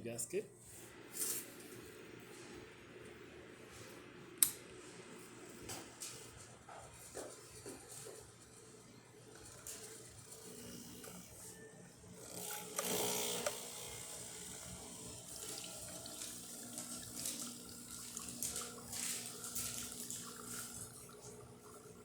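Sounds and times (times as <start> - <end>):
espresso machine pump humming: 7.2 - 22.0
water running: 14.6 - 22.0.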